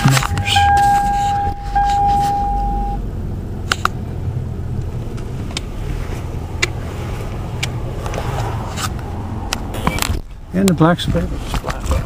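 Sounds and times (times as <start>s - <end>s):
steady tone: 0.0s - 3.6s
motor vehicle rumble: 0.0s - 12.0s.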